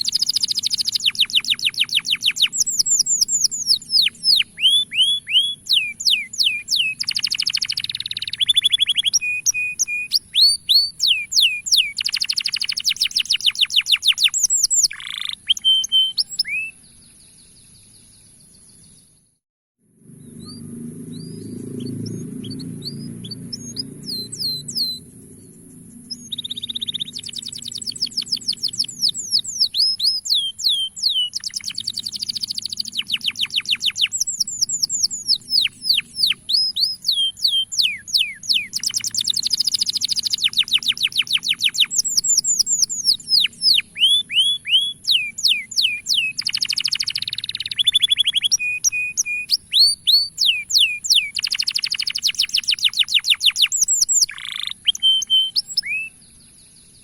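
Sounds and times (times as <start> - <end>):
canary singing trills: 0.0 - 19.0, 20.1 - 57.0.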